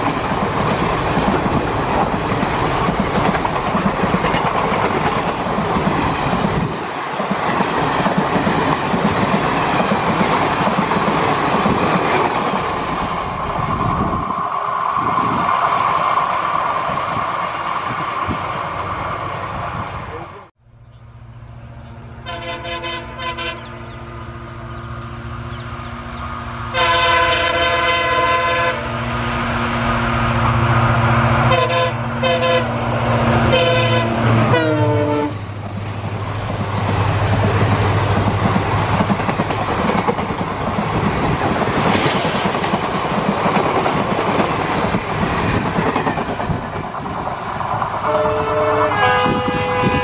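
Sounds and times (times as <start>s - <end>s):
diesel locomotive engine drone: 0.0s - 50.0s
wheel and rail noise: 0.0s - 50.0s
train horn blasts: 22.1s - 24.7s, 26.7s - 29.1s, 31.3s - 35.5s, 48.0s - 50.0s.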